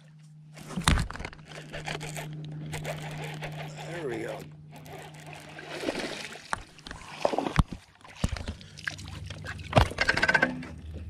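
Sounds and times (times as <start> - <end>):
sharp knocks against a hull: 9.8 - 10.7.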